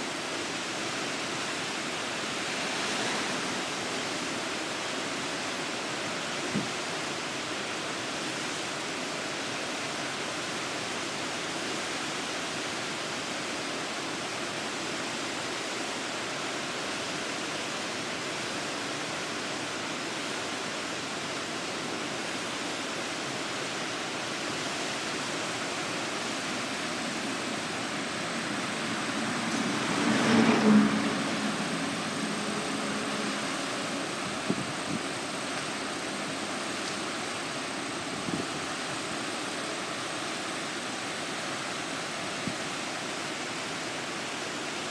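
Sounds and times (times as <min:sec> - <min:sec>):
floodwater rushing: 0:00.0 - 0:44.9
vehicle passing: 0:27.2 - 0:34.4.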